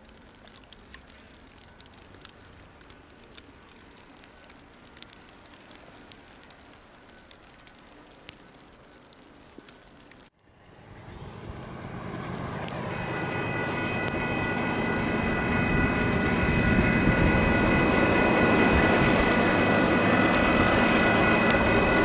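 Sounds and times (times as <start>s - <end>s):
diesel locomotive engine rumble: 10.6s - 22.0s.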